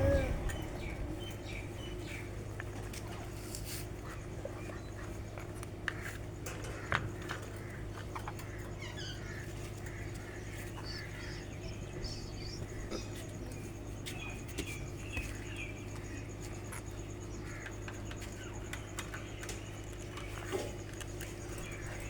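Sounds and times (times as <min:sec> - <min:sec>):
steady low hum: 0:00.0 - 0:22.0
parrots chirping: 0:08.8 - 0:13.6.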